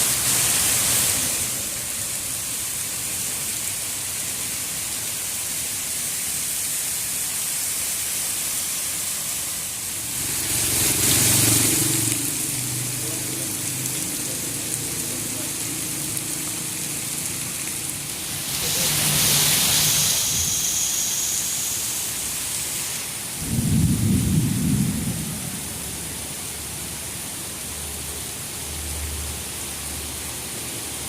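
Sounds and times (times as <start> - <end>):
heavy rain pouring: 0.0 - 31.0
low rumble of thunder: 23.4 - 26.2.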